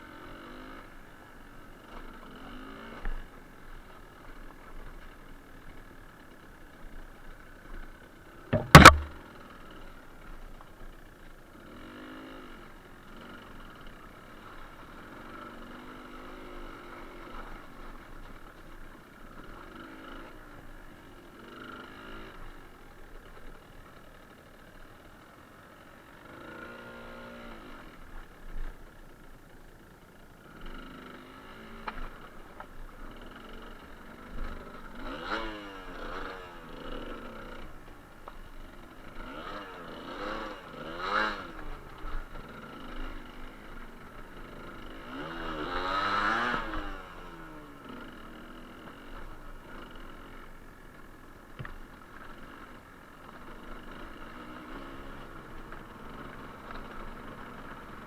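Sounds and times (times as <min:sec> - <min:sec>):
sharp knock: 0:08.6 - 0:09.2
motorcycle engine revving: 0:08.6 - 0:09.3, 0:30.5 - 0:51.0, 0:51.6 - 0:58.0.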